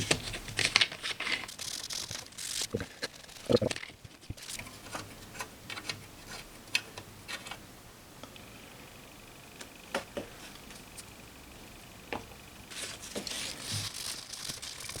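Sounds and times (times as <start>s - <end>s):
rubbing and scrubbing: 12.7s - 15.0s.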